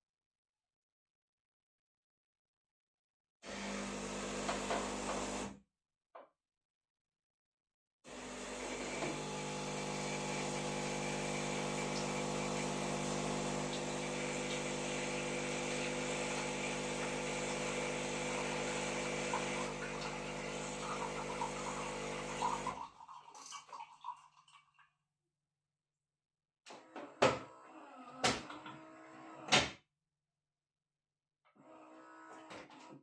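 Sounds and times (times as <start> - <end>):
espresso machine pump humming: 3.5 - 5.5, 8.1 - 22.8.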